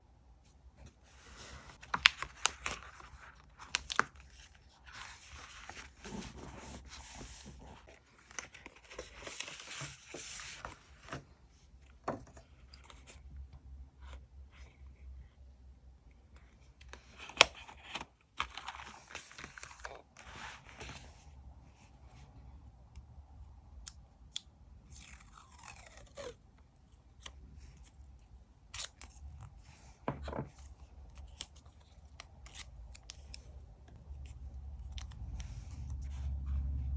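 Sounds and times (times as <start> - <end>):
paper rustling and crinkling: 1.0 - 11.3, 17.0 - 21.2.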